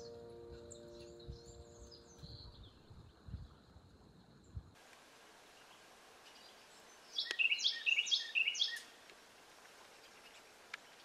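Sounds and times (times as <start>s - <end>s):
songbird singing: 0.0s - 4.8s, 5.4s - 9.1s, 9.8s - 11.0s
outdoor hiss: 4.7s - 11.0s.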